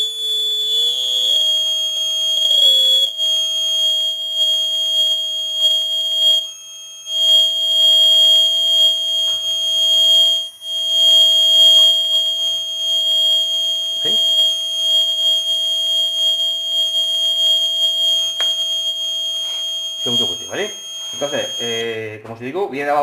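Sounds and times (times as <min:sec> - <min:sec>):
piercing high buzzer tone: 0:00.0 - 0:22.1.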